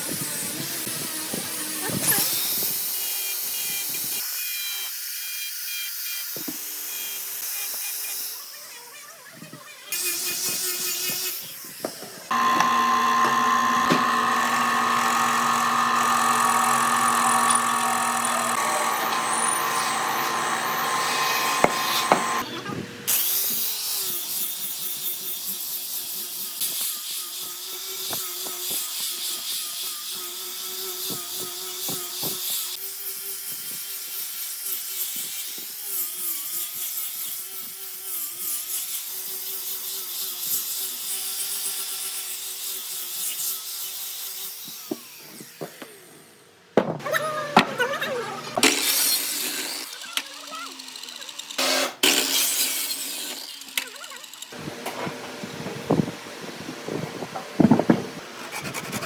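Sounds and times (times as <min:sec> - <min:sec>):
power tools working wood: 0:09.9 - 0:23.3, 0:41.8 - 0:59.0
hissing machine: 0:12.3 - 0:22.5
machine running with high tone: 0:12.3 - 0:22.5.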